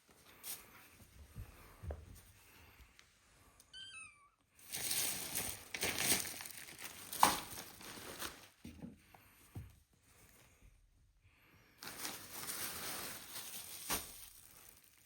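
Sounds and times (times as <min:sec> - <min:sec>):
crinkling and rustling: 0:04.6 - 0:09.3, 0:11.8 - 0:15.0.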